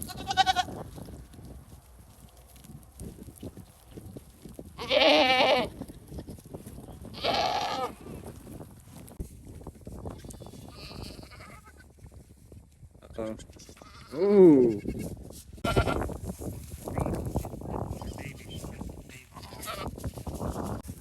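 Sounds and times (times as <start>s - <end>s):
goats bleating: 0.0s - 0.8s, 4.8s - 6.3s, 7.1s - 8.1s, 10.2s - 11.8s, 13.3s - 16.0s, 19.3s - 19.9s.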